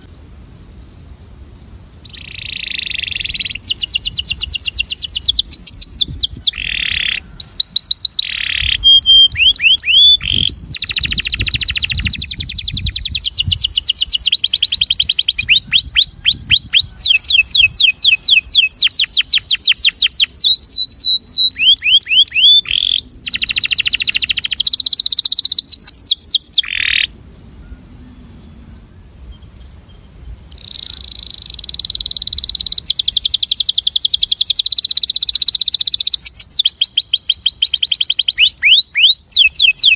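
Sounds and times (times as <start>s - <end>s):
canary singing trills: 2.0s - 28.1s, 30.5s - 39.9s.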